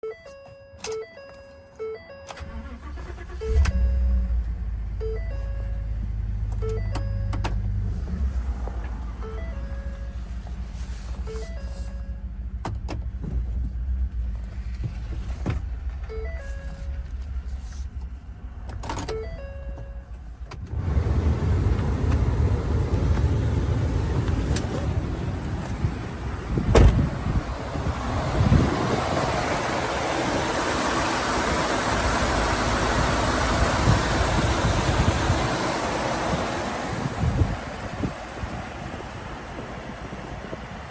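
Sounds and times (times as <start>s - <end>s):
pickup engine starting and rumbling: 2.1s - 40.9s
sharp thump: 26.6s - 27.1s.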